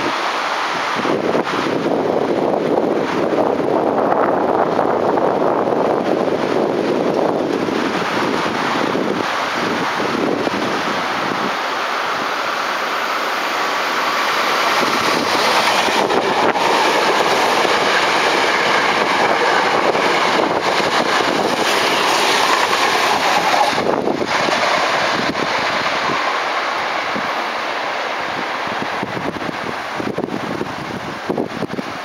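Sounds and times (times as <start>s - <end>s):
train wheels rushing on rails: 0.0s - 32.0s
rail joint clicks: 6.0s - 30.3s.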